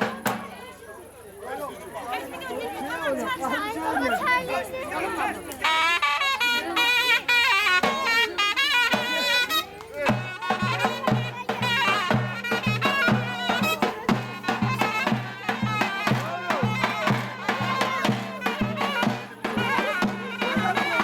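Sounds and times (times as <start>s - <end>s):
steady drum beat: 0.0s - 0.7s, 7.1s - 21.0s
reed wind instrument melody: 5.6s - 21.0s.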